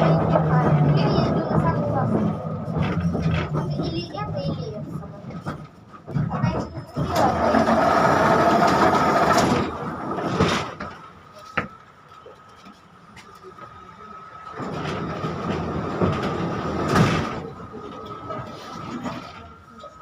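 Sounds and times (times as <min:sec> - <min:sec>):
tram wheels and running gear: 0:00.0 - 0:20.0.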